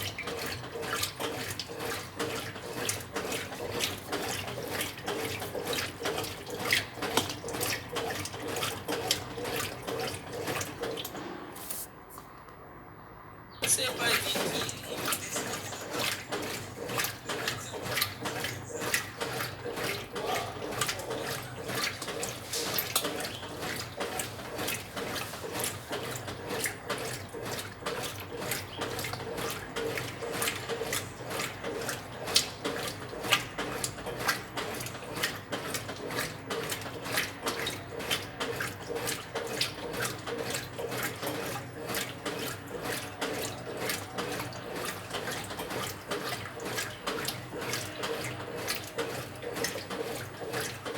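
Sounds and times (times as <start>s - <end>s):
water splashing in washing machine: 0.0s - 12.1s, 13.6s - 50.9s
low machine hum: 2.6s - 32.3s.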